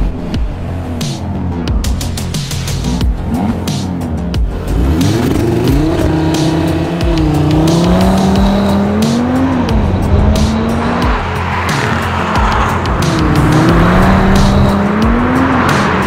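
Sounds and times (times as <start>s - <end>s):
car engine revving hard: 4.5s - 16.0s.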